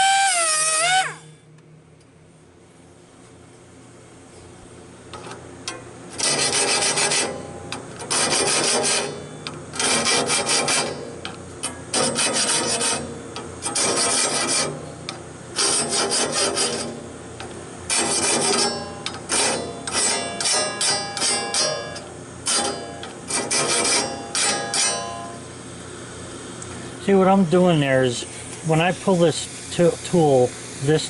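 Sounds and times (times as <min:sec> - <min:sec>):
hand file rasping on saw teeth: 0:06.2 - 0:07.3, 0:08.1 - 0:09.1, 0:09.8 - 0:10.9, 0:11.9 - 0:14.8, 0:15.6 - 0:17.0, 0:17.9 - 0:20.2.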